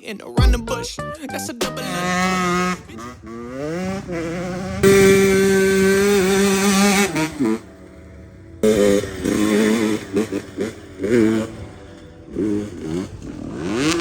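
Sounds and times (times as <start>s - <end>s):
dirt bike engine revving: 2.2s - 7.6s, 12.3s - 14.0s.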